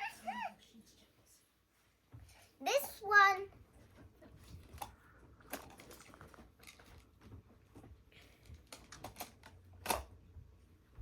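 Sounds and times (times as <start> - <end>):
clicks and taps of plastic toys: 4.6 - 10.1.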